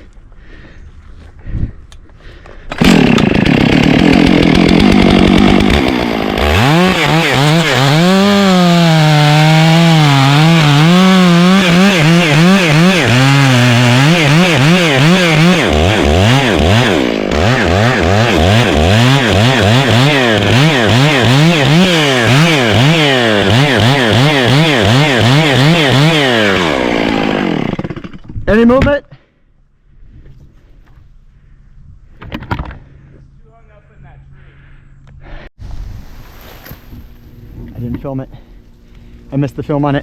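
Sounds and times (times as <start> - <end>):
chainsaw cutting wood: 2.6 - 28.8.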